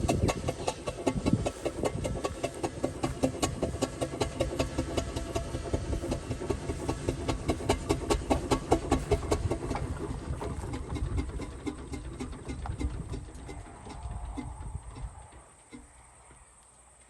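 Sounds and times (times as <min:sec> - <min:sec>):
steam traction engine running: 0:00.0 - 0:16.8.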